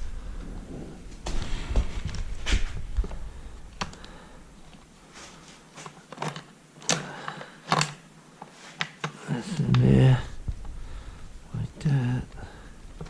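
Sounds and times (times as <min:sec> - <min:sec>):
chainsaw parts clicking and knocking: 0:06.1 - 0:08.0.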